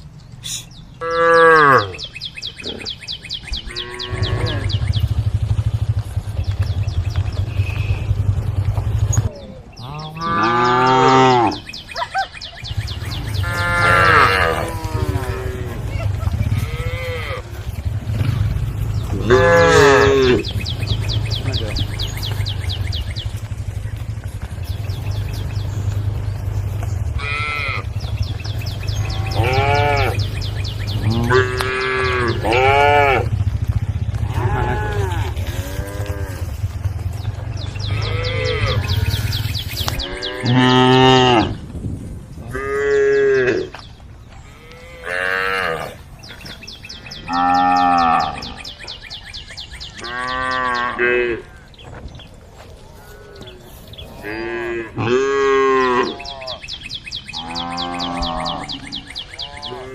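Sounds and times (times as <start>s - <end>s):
cow mooing: 1.0s - 2.0s, 3.7s - 4.8s, 9.8s - 11.7s, 13.2s - 22.4s, 27.1s - 28.0s, 28.8s - 33.4s, 34.2s - 36.7s, 37.8s - 41.6s, 42.5s - 43.8s, 44.4s - 46.0s, 47.3s - 48.6s, 50.0s - 51.6s, 53.0s - 56.6s, 57.3s - 59.9s.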